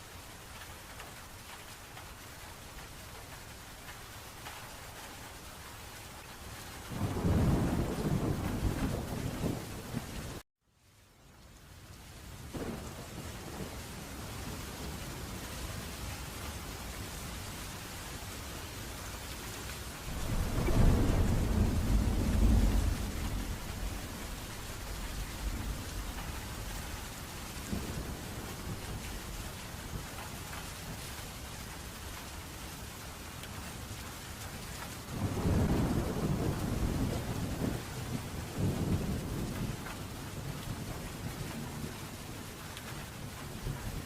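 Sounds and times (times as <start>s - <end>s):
steady rain: 0.0s - 44.0s
thunder rumbling: 6.9s - 10.4s, 12.5s - 15.4s, 20.0s - 30.6s, 35.0s - 42.4s.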